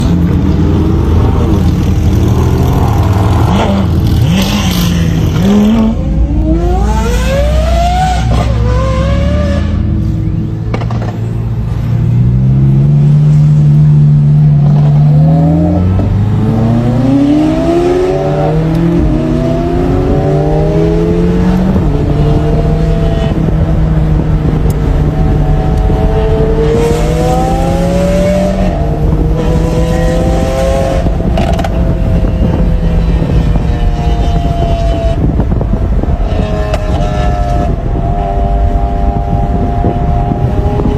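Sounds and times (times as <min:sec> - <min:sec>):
car engine accelerating hard: 0:12.0 - 0:40.9.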